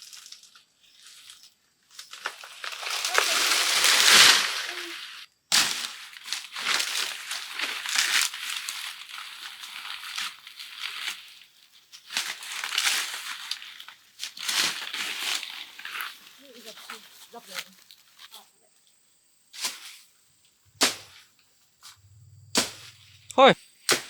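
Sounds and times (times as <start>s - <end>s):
crinkling and rustling: 0.0s - 18.6s.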